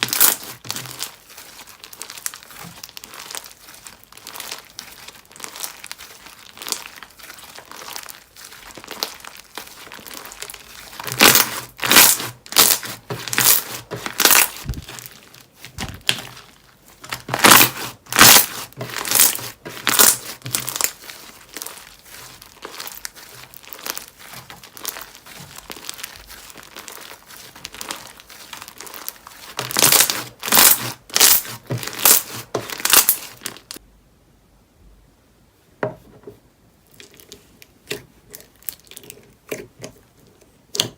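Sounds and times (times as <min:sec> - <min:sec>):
slime crackling: 0:00.0 - 0:33.8
slime crinkling pops: 0:00.0 - 0:33.8.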